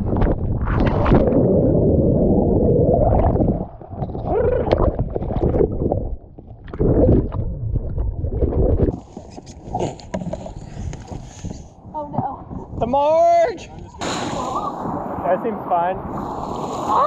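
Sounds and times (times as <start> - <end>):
whitewater rushing and splashing: 14.0 - 17.0.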